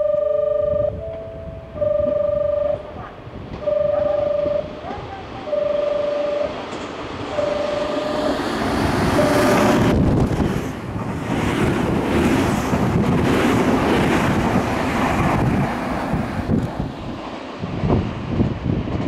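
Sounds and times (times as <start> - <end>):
steady beep: 0.0 - 2.9, 3.6 - 4.8, 5.4 - 6.6, 7.3 - 8.4, 9.1 - 9.8
electric train passing: 0.0 - 19.0
wind on microphone: 0.5 - 19.0.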